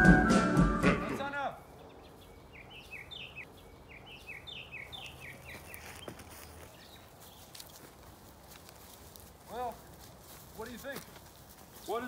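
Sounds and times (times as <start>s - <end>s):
bird chirping with falling pitch: 0.0s - 7.1s
faint outdoor background: 0.0s - 12.0s.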